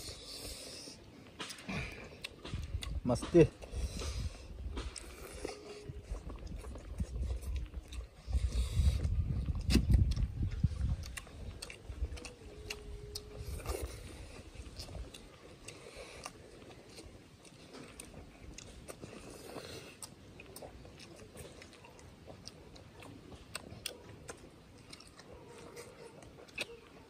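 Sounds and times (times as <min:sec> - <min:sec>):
people chewing food: 0:00.0 - 0:27.0
wet clicks and lip smacks: 0:01.2 - 0:27.0.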